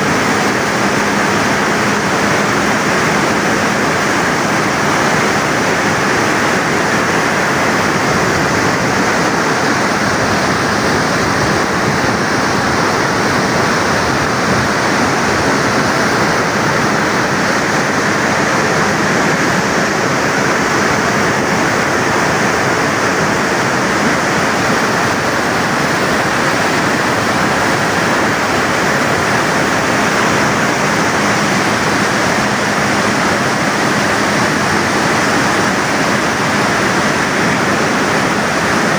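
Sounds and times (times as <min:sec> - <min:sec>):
loud rush of water: 0:00.0 - 0:38.9.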